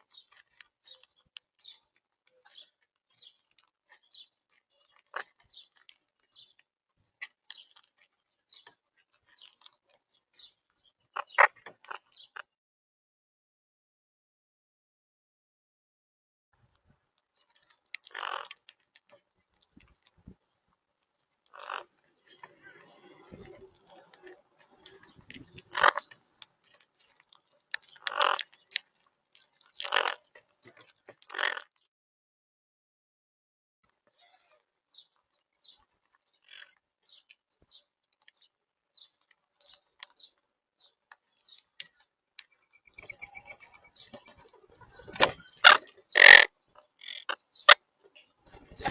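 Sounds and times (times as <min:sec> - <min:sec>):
parakeets cracking seeds: 0:17.6 - 0:20.2, 0:21.5 - 0:31.6, 0:44.0 - 0:47.8.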